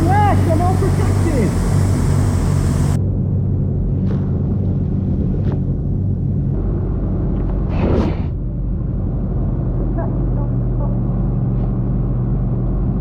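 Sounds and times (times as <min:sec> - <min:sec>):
motorcycle engine idling: 0:00.0 - 0:03.0.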